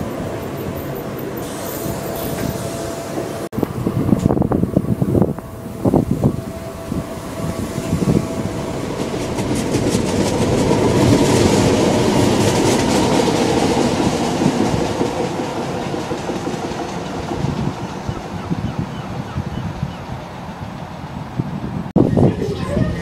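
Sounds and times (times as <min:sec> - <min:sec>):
electric whine of train: 0:00.0 - 0:23.0
train wheels clicking over joints: 0:08.7 - 0:18.3.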